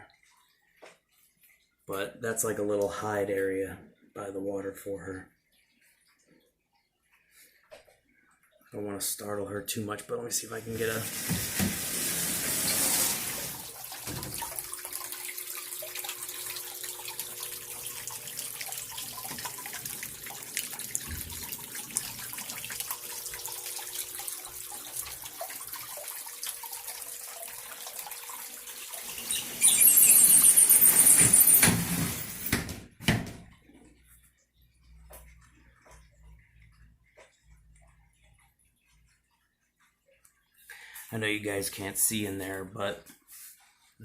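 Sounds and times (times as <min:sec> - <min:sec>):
small waterfall running into pond: 0:10.7 - 0:31.7.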